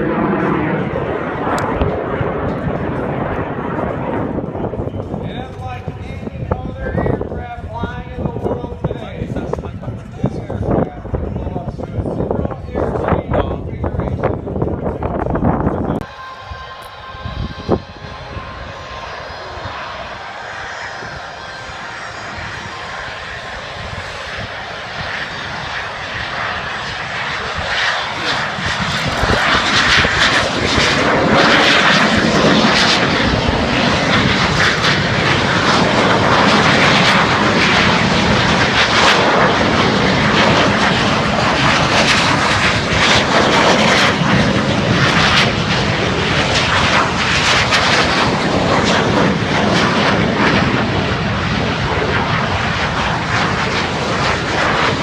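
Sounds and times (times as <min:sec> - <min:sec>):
airplane engine in flight: 0:00.0 - 0:55.0.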